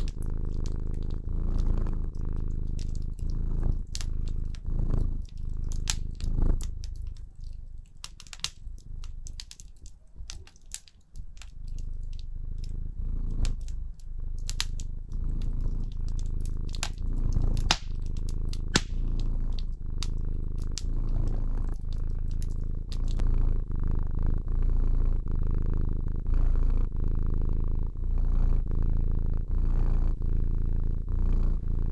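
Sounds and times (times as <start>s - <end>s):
fireplace crackling: 0.0s - 23.2s
cat purring: 0.0s - 31.9s.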